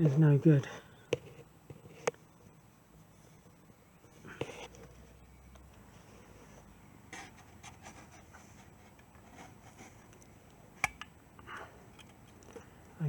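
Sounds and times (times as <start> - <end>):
faint rubbing of metal parts: 0.0 - 10.3.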